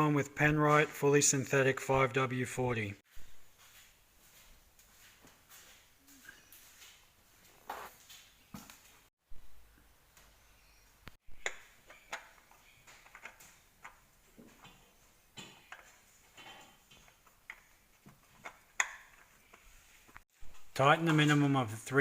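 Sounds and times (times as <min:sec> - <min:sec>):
quiet hiss: 0:06.4 - 0:18.0
tools clicking and knocking: 0:11.3 - 0:19.3.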